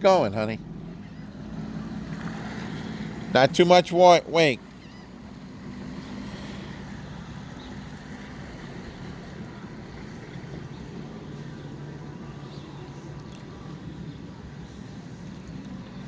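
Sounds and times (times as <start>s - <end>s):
jet ski engine running: 0.0s - 16.0s.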